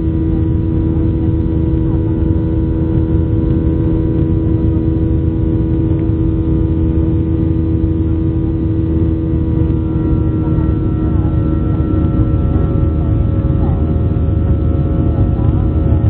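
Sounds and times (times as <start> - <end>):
jet engines humming in cabin: 0.0 - 16.0.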